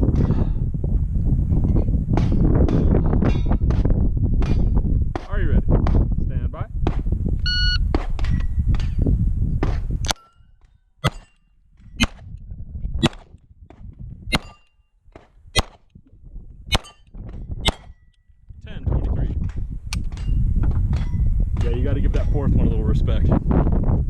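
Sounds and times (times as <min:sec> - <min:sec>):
shot timer beep: 0:07.5 - 0:07.8
pistol shots: 0:15.6 - 0:15.8.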